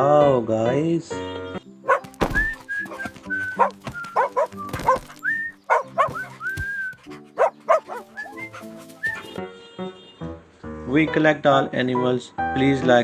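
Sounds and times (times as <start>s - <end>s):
light background music: 0.0s - 13.0s
dog barking and yipping: 1.9s - 9.4s.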